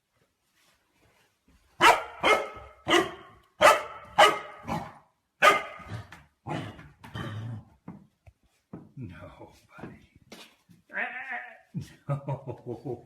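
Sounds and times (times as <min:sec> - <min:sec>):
dog barking: 0:01.8 - 0:05.9.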